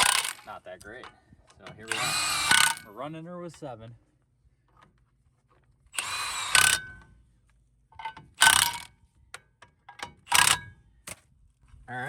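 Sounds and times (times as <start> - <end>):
power wrench bursts: 0.0 - 0.6, 1.7 - 2.9, 6.0 - 7.1, 8.4 - 8.9, 10.2 - 10.6.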